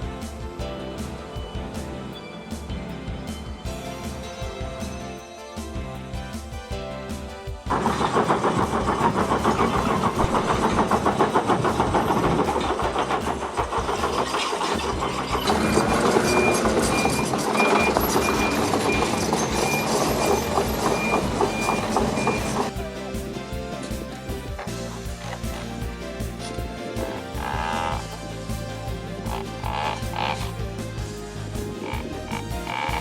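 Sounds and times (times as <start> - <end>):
rattling and clanking: 7.7 - 22.8
heavy machinery engine: 7.7 - 33.0
back-up alarm beeping: 15.5 - 22.7.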